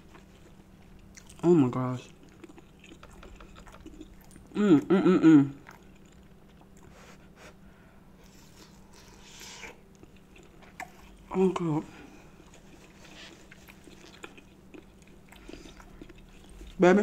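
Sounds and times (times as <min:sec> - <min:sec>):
woman chewing sausage: 0:00.0 - 0:07.6, 0:08.2 - 0:17.0.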